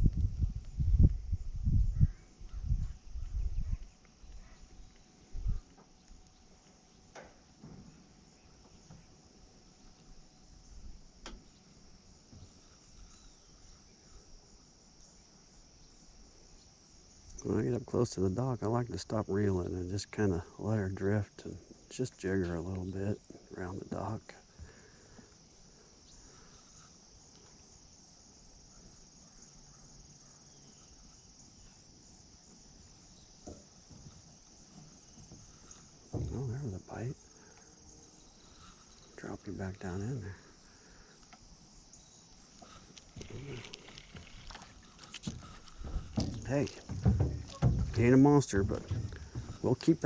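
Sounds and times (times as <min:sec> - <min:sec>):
high-pitched insect chorus: 0:00.0 - 0:50.0
high-pitched insect trilling: 0:25.3 - 0:50.0.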